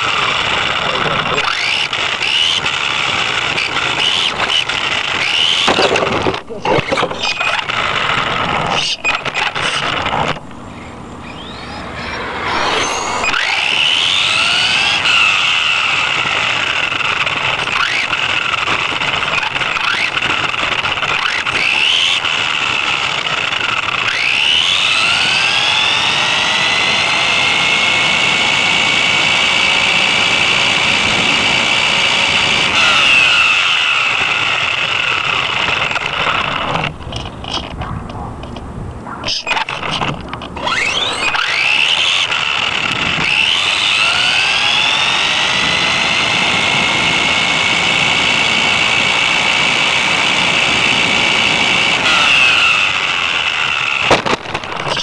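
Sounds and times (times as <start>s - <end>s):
electric toy car motor whining: 0.0s - 10.4s, 11.2s - 37.8s, 39.2s - 55.0s.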